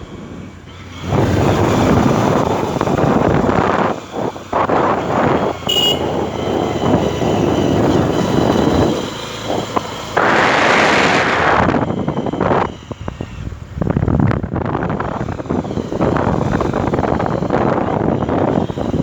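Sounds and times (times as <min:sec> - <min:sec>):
motorcycle engine: 0:00.0 - 0:19.0
wind buffeting microphone: 0:00.0 - 0:19.0
short high beep: 0:05.7 - 0:06.3.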